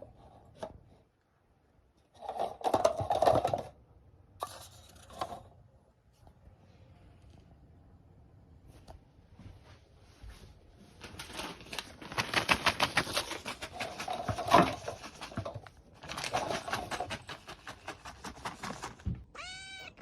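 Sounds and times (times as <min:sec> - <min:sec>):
cat rising call: 0:19.3 - 0:20.0.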